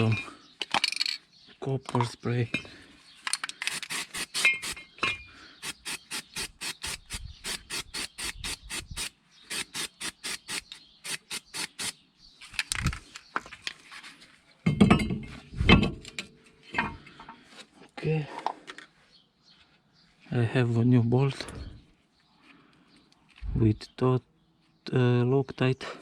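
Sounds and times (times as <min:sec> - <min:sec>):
aerosol can ball rattling: 0:03.5 - 0:04.8, 0:05.6 - 0:11.9.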